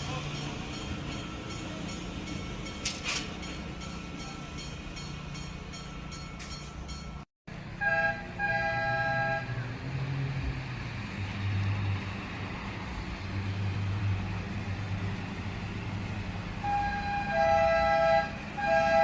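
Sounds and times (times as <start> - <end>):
low rumble of train running: 0.0 - 19.0
two-note train horn: 7.8 - 9.6, 16.6 - 19.0.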